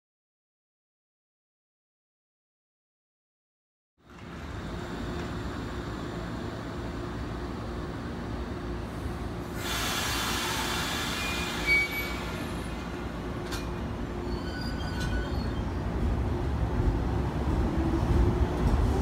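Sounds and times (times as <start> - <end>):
rumble of wheels and motors: 4.0 - 9.6, 11.2 - 19.0
train hiss: 8.9 - 13.0
faint high wheel squeals: 10.5 - 12.8, 14.2 - 15.8.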